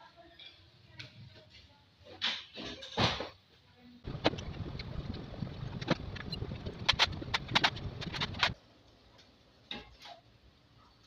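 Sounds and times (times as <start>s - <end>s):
low rumble: 4.1s - 8.6s
sharp clicks and knocks: 4.1s - 8.6s.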